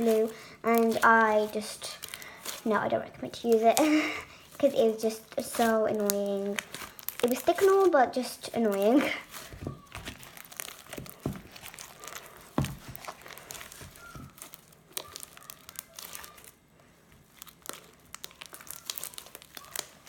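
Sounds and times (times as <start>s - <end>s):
slime stirred with sticky pops: 0.0s - 20.0s.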